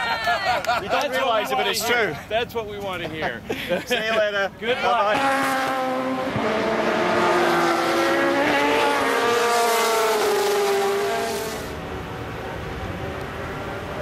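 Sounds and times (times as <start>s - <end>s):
racing car engine at high revs: 5.1s - 14.0s.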